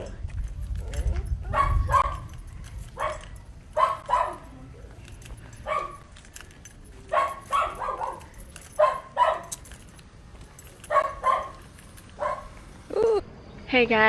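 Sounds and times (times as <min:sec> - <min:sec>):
dog barking: 0:00.8 - 0:02.3, 0:03.0 - 0:04.5, 0:05.6 - 0:06.1, 0:07.1 - 0:09.6, 0:10.8 - 0:11.6, 0:12.2 - 0:12.6.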